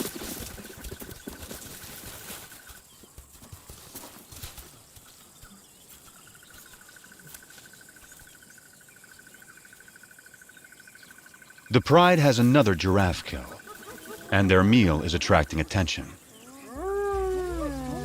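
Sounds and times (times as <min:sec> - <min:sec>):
insect trilling: 0:06.4 - 0:18.0.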